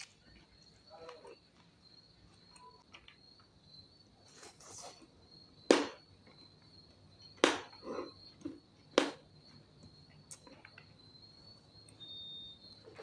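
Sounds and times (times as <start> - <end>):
soft chewing and rustling: 0.0 - 3.3.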